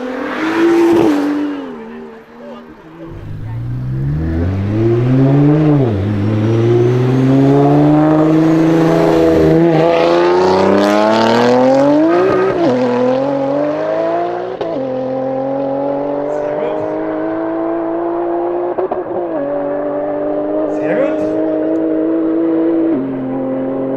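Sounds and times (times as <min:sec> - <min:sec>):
car engine accelerating hard: 0:00.0 - 0:23.9.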